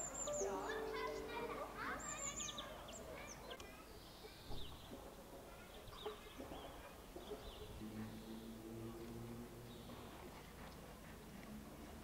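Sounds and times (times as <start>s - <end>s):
small birds chirping: 0.0s - 5.0s.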